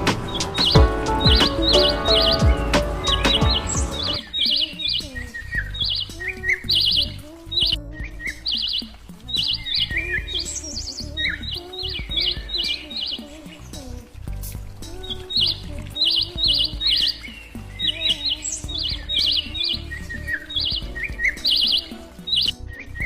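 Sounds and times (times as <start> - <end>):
soft low background music: 0.0 - 23.0
songbirds chirping: 0.0 - 23.0.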